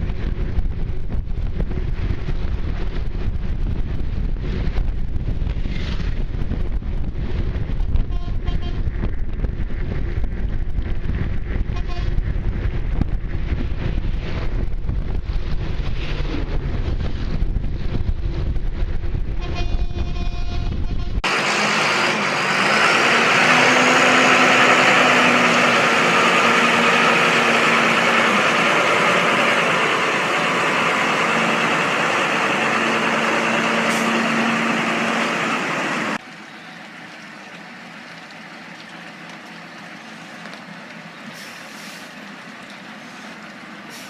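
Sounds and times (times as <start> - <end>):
heavy vehicle engine rushing: 20.8 - 36.8.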